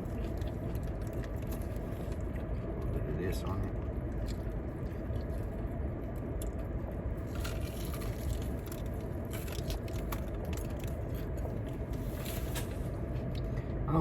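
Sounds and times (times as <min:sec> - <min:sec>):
wet clicks and crackles: 0:00.0 - 0:05.5, 0:07.3 - 0:12.0
biscuit being bitten and chewed: 0:00.0 - 0:13.5
steady low hum: 0:00.0 - 0:14.0.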